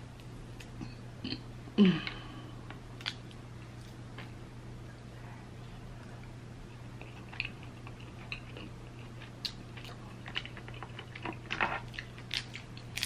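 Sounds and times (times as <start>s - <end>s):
faint low hum: 0.0s - 13.0s
person chewing: 6.7s - 13.0s.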